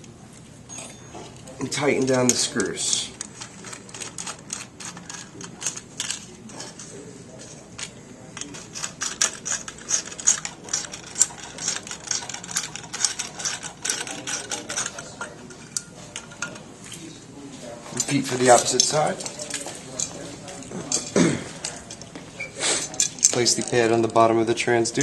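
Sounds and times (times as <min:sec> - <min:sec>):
screwdriver tightening screws on metal: 0:02.3 - 0:06.2, 0:08.4 - 0:16.6.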